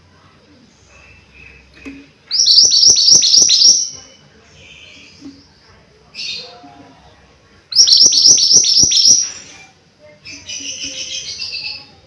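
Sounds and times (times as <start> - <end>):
bird chattering: 2.3 - 4.2, 7.7 - 9.6.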